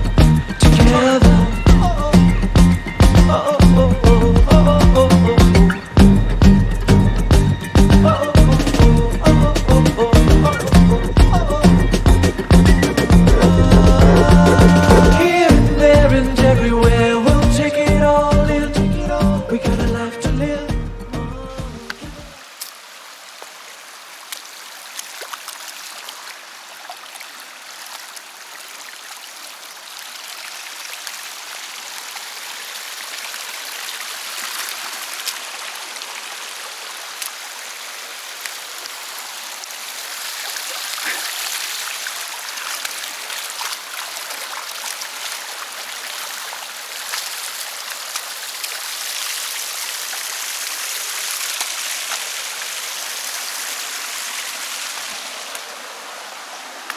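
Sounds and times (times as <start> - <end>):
river water flowing over stones: 0.0 - 56.9.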